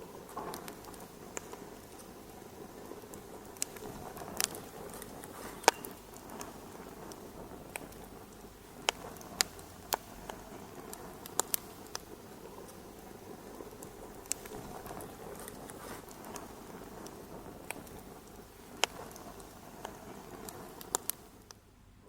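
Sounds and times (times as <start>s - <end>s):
fire popping: 0.0s - 22.0s
wood fire crackling: 0.0s - 22.0s.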